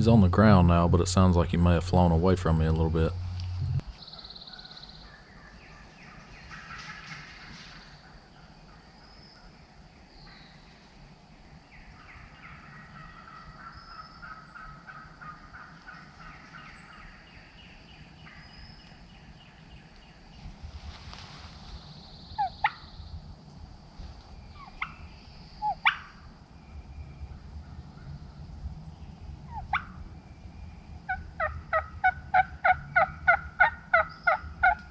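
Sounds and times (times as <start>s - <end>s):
distant turkey gobbling: 12.1s - 17.2s, 25.6s - 26.2s, 29.5s - 30.0s, 31.1s - 34.9s.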